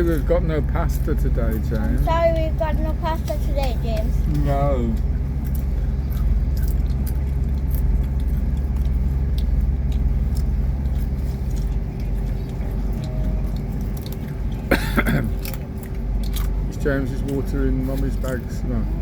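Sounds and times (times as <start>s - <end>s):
train rumble from inside carriage: 0.0s - 19.0s
crisps being chewed: 5.0s - 18.5s.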